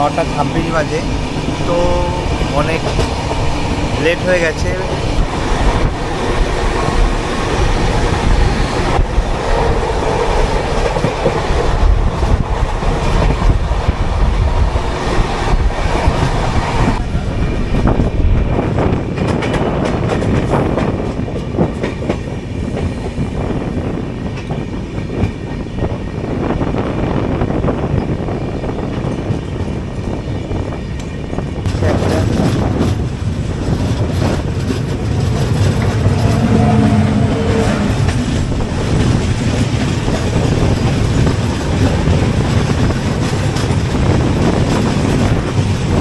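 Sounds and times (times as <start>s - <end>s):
train rumbling at speed: 0.0s - 46.0s
wheels clattering over rail joints: 30.9s - 46.0s.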